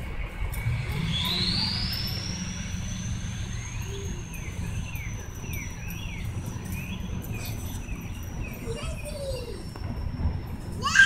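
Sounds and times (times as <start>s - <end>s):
low wind rumble: 0.0s - 11.0s
thin high-pitched whine: 0.0s - 11.0s
bird whistling rapid notes: 0.6s - 8.9s.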